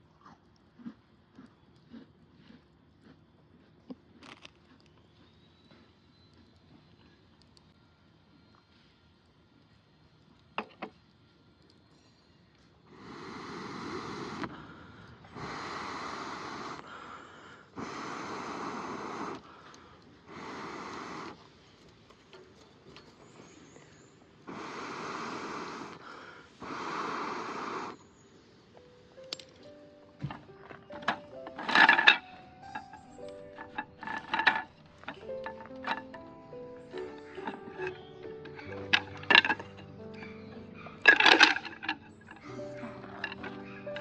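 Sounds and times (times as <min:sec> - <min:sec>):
breath-like blowing bursts: 0:12.9 - 0:21.6, 0:24.4 - 0:28.2.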